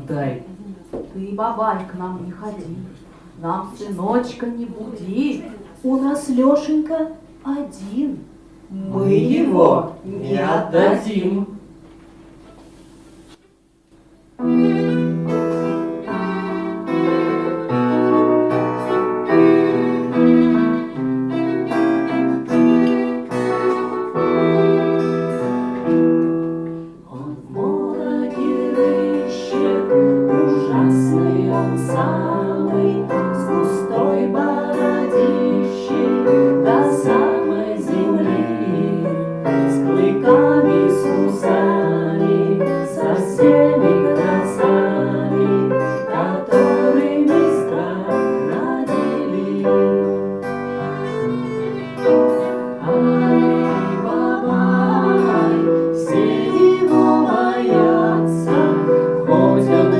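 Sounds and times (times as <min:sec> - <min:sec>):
instrumental music with sustained chords: 0:14.4 - 0:27.0.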